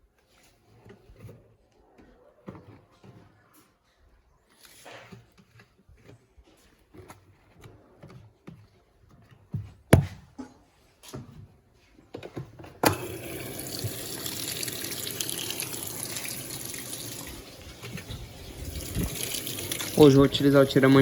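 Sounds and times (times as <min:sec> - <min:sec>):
washing machine filling with water: 0:12.9 - 0:21.0.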